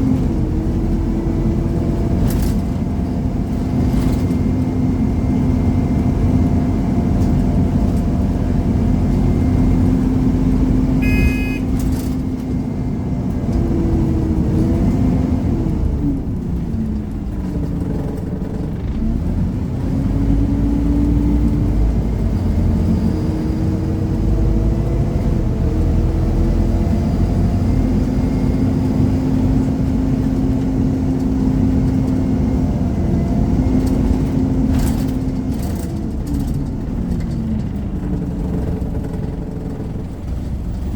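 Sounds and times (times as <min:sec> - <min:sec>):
bus engine running: 0:00.0 - 0:40.9
short beep: 0:11.0 - 0:11.8.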